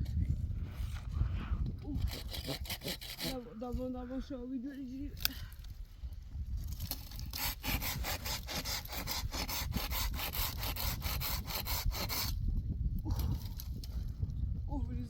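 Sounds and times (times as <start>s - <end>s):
hand saw cutting wood: 1.9s - 3.4s, 6.8s - 12.4s.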